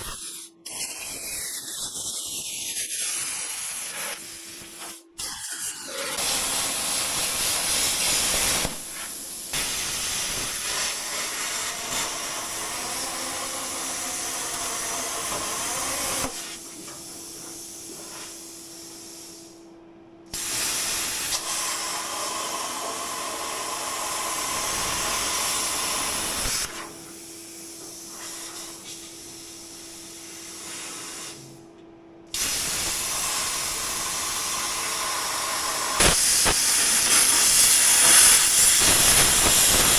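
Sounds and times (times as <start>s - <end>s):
cutting torch hissing: 0.0s - 16.7s, 20.4s - 27.0s, 32.3s - 39.9s.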